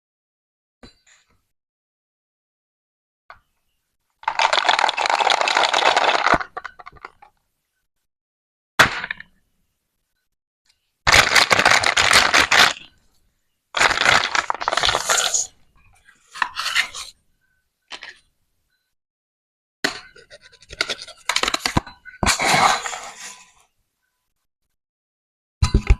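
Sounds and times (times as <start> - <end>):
toy knife scraping plastic: 20.1 - 23.5.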